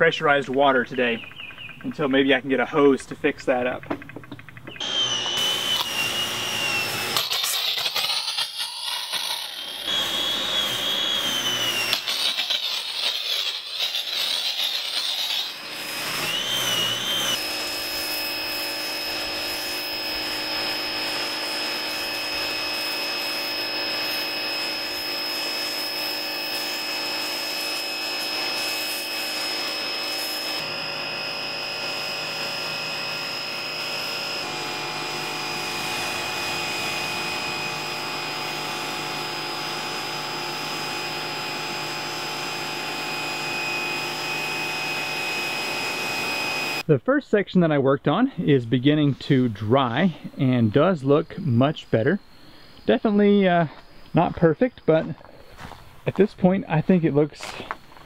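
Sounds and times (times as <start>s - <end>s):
pressure washer whine: 4.8s - 46.9s.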